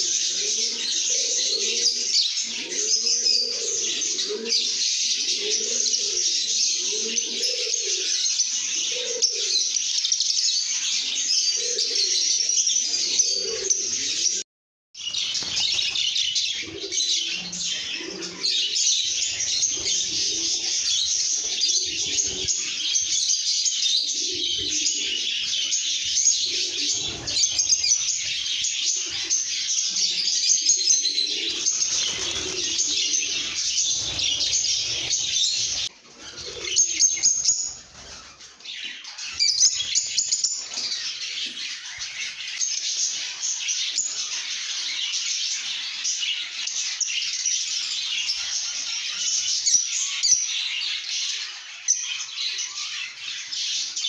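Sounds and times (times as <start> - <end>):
lovebirds chirping: 10.8 - 14.4, 15.0 - 44.5.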